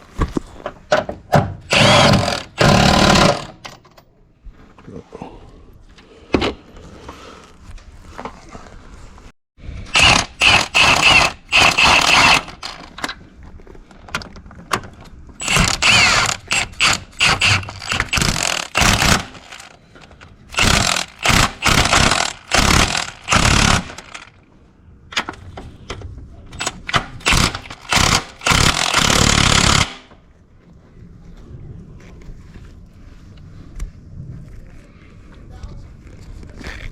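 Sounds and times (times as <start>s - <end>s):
power tool running: 1.7s - 3.6s, 10.0s - 12.8s, 15.4s - 19.7s, 20.6s - 24.3s, 27.2s - 29.9s.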